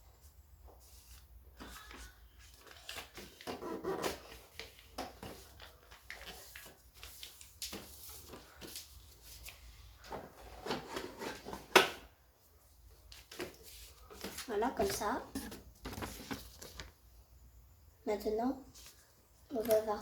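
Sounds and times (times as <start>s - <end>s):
paper rustling and crinkling: 0.8s - 11.6s, 13.0s - 17.0s.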